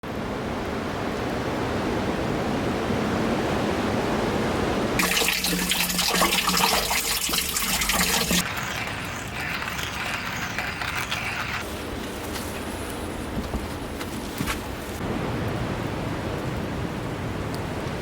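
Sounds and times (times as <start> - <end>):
water rushing: 3.2 - 11.6.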